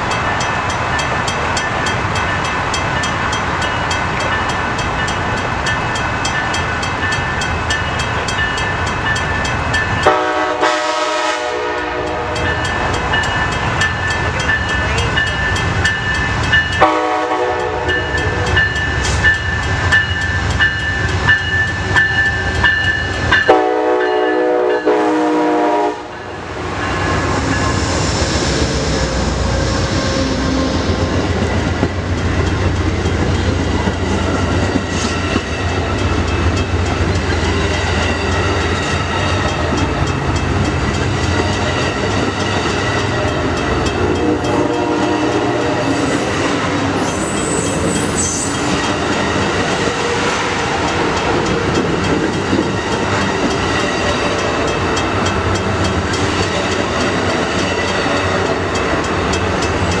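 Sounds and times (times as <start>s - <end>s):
passing train rumble: 0.0s - 60.0s
train horn blowing: 10.0s - 12.6s, 16.8s - 18.4s, 23.4s - 26.4s, 44.0s - 48.1s.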